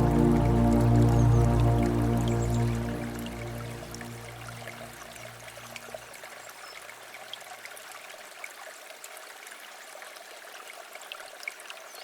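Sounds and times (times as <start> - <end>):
low background music: 0.0 - 5.3
stream water flowing: 0.0 - 12.0.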